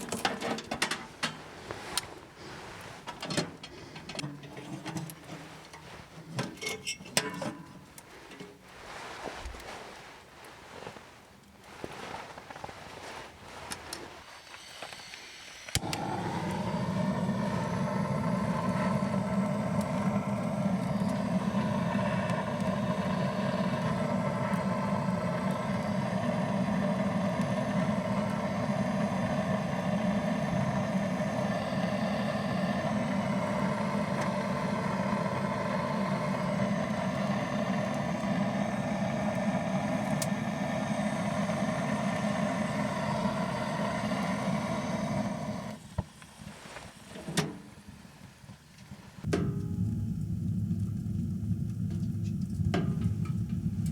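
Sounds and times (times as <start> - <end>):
gas flame roaring: 0.0 - 53.9
gas burner ignition click: 15.1 - 46.1, 49.2 - 53.9.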